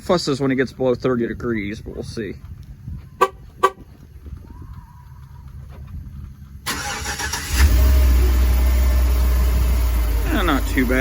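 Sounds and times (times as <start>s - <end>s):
engine idling: 5.2s - 11.0s
starter cranking: 6.7s - 7.8s.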